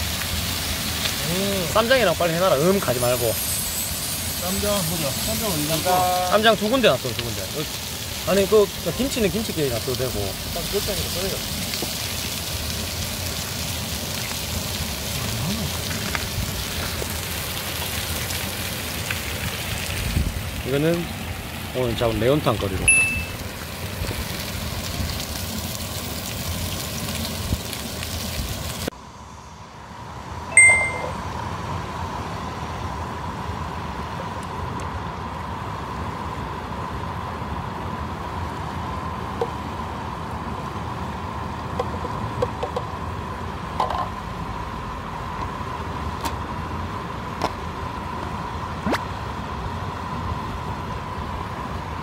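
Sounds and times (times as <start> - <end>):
steady hiss: 0.0 - 29.9.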